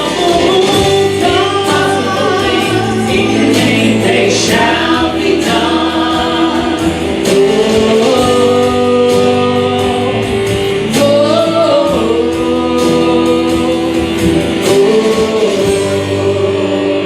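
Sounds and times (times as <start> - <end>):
guitar chords: 0.0 - 17.0
person singing: 0.0 - 17.0
worship band playing: 0.0 - 17.0.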